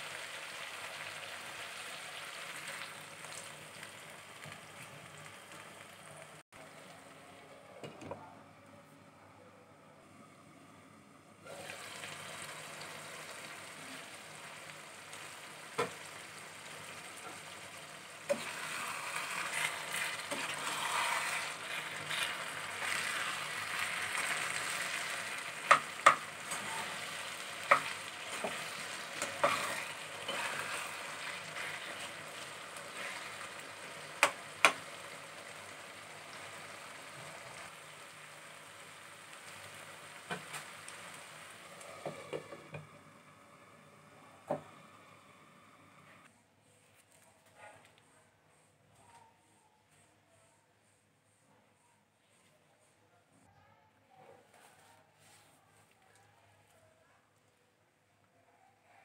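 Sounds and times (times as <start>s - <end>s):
food sizzling in frying pan: 0.0s - 6.9s, 11.5s - 46.0s.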